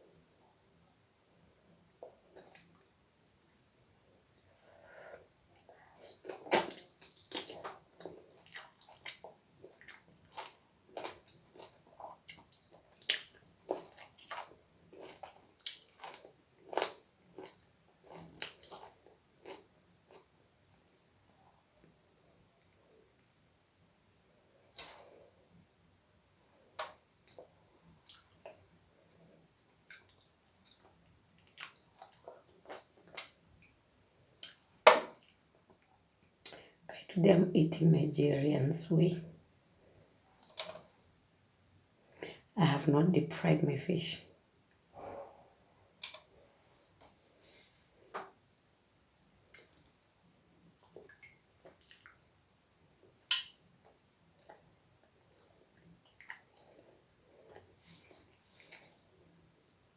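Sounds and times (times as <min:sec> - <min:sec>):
wet chewing: 0:05.6 - 0:20.3, 0:29.8 - 0:33.4, 0:50.8 - 0:52.4, 0:55.3 - 0:59.0
wet chewing mouth sounds: 0:50.8 - 0:52.4.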